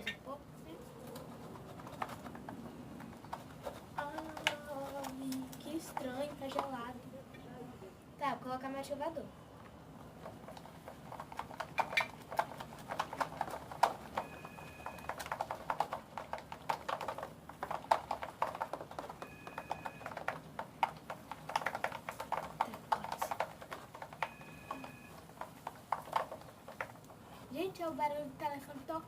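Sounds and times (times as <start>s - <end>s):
phone ringing: 14.1s - 15.4s, 19.1s - 20.4s, 24.1s - 25.3s.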